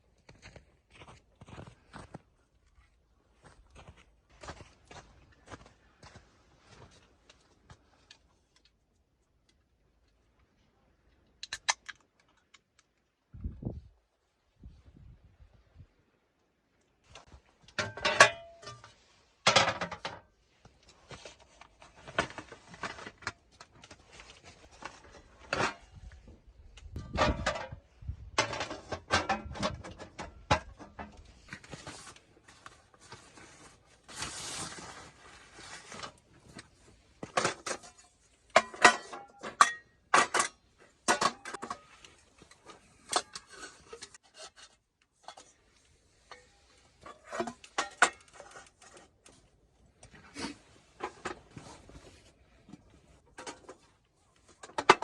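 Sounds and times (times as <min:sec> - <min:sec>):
camp gear knocking and clinking: 0:17.1 - 0:33.3, 0:37.2 - 0:45.6, 0:46.2 - 0:49.4, 0:50.4 - 0:55.0
scraping and rubbing: 0:31.4 - 0:36.2.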